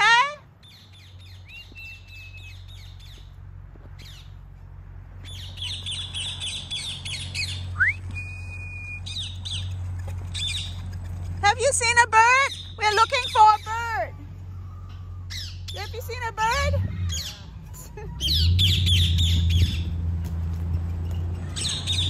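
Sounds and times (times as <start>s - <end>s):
whistled bird notes: 0.6s - 3.2s, 5.2s - 9.7s, 18.2s - 19.9s
chattering of many birds: 5.2s - 7.8s, 9.0s - 22.0s
high bird chirps: 5.2s - 10.8s, 12.3s - 20.0s, 21.0s - 22.0s.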